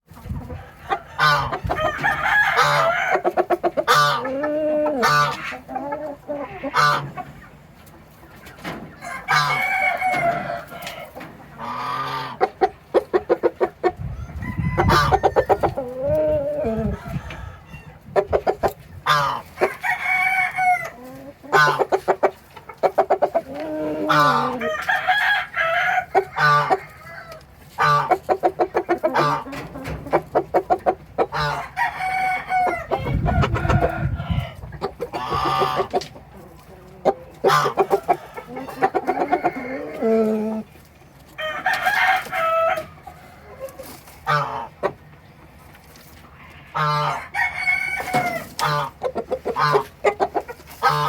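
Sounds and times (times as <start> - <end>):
chickens clucking: 0.0 - 51.0
rooster crowing: 1.1 - 3.3, 9.0 - 11.0, 14.1 - 15.8, 19.6 - 21.0, 24.0 - 27.4, 31.4 - 34.6, 37.9 - 40.2, 41.4 - 43.5, 46.8 - 48.6.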